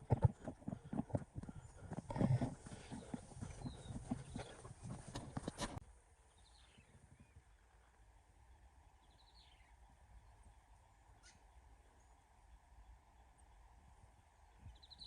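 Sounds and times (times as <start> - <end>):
bird chirping: 1.6 - 5.4, 14.5 - 15.0.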